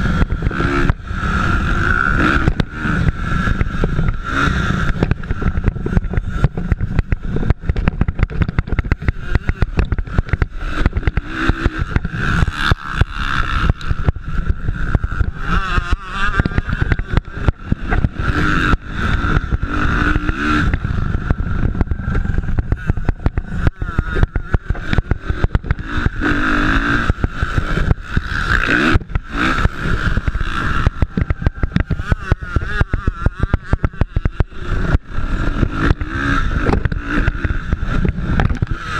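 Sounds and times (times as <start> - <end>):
dirt bike engines revving: 0.0 - 38.9
microphone crackling: 0.0 - 38.9.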